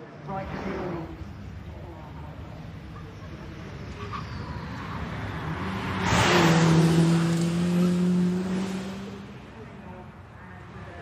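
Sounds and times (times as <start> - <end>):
race car driving past: 0.3 - 9.8.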